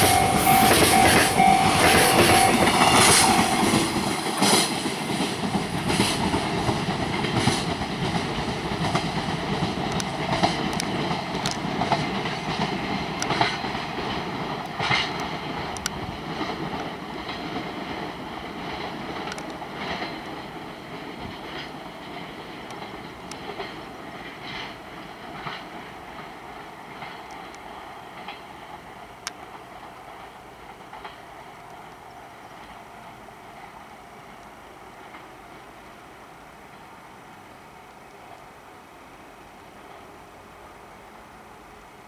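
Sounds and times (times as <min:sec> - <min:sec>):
train wheels clicking over rail joints: 0:00.0 - 0:32.9
train rumble: 0:00.0 - 0:42.0.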